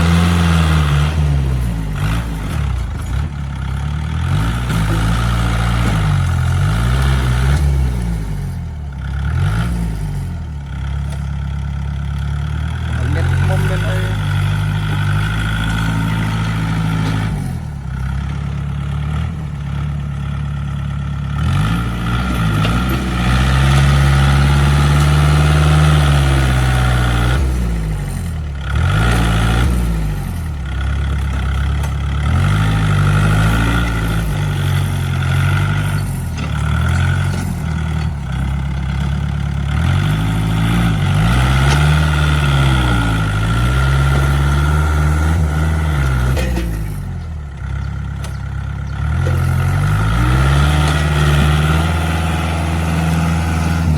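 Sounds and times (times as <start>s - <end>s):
tractor engine revving: 0.0s - 53.9s.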